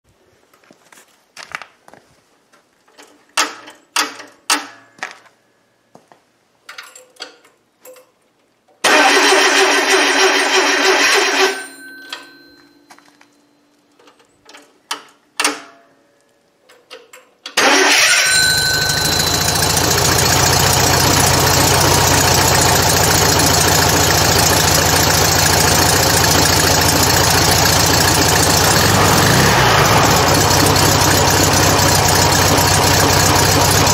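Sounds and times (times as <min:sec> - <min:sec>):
car engine starting and idling: 0:08.8 - 0:11.7, 0:17.6 - 0:33.9.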